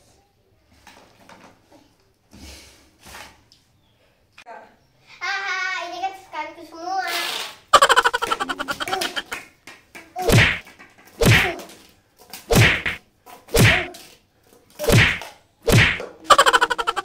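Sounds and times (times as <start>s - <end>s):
balloon swishing and thudding: 10.2s - 10.6s, 11.2s - 11.6s, 12.5s - 13.9s, 14.8s - 17.0s.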